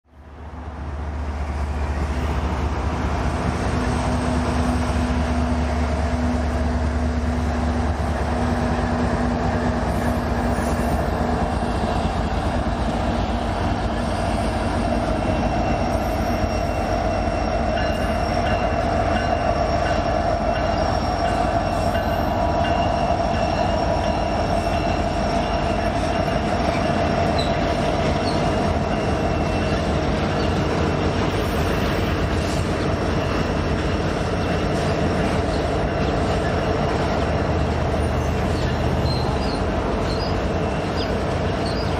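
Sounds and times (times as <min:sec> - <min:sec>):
diesel locomotive rumble: 0:00.1 - 0:41.9
high wheel squeal: 0:09.4 - 0:30.7, 0:37.9 - 0:41.9.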